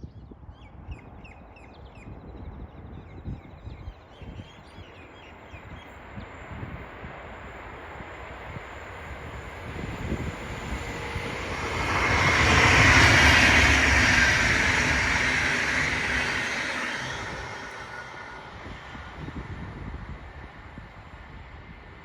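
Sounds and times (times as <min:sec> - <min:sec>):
train passing by: 0:04.0 - 0:22.0.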